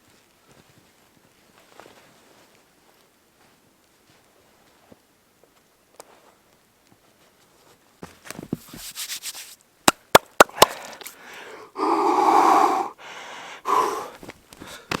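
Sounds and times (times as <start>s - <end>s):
crackly handling noises: 0.0s - 9.7s
person breathing out hard: 10.5s - 15.0s.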